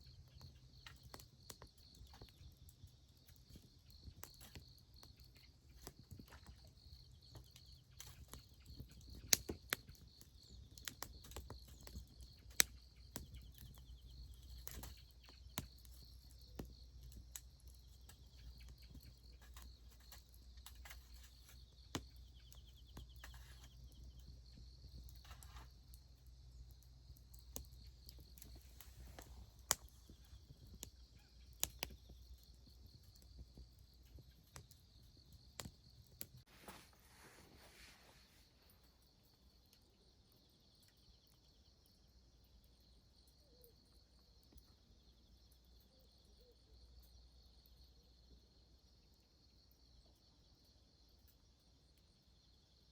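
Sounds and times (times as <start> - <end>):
campfire crackling and popping: 0.0 - 37.0
insects chirring: 0.0 - 52.9.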